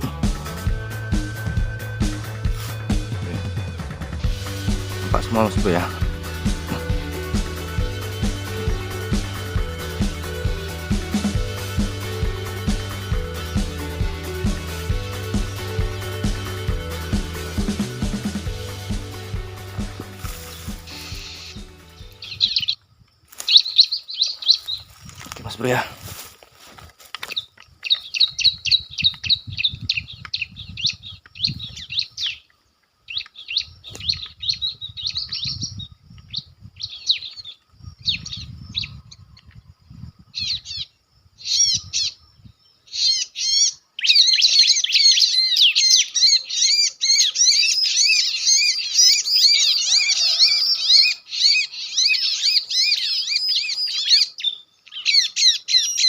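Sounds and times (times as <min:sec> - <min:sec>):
bird chirping high-pitched: 0:20.3 - 0:22.8, 0:40.4 - 0:56.0.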